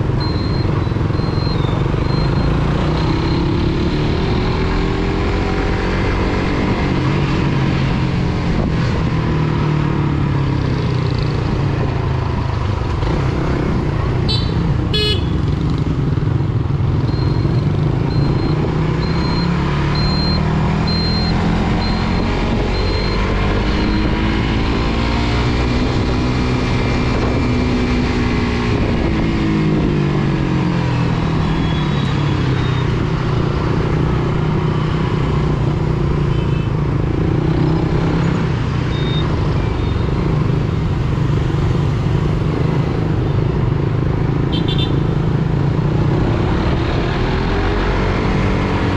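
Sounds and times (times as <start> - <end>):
short high beeps: 0.2 - 3.6, 17.0 - 24.2, 38.9 - 40.2
motorcycle engine: 12.6 - 48.9.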